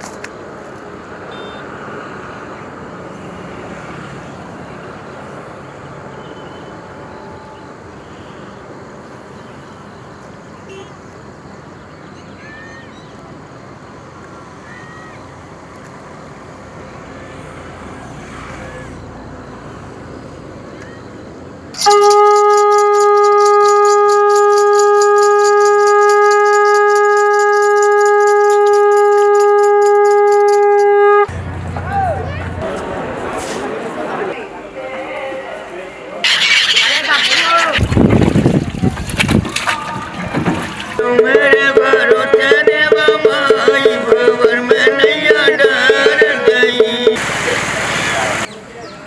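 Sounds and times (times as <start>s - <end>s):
high-pitched jingling: 21.7s - 32.6s, 41.0s - 47.2s
conch shell blown: 21.8s - 31.3s, 41.0s - 47.2s
fast even beat of short notes: 41.0s - 47.2s
winding melody line: 41.0s - 47.2s.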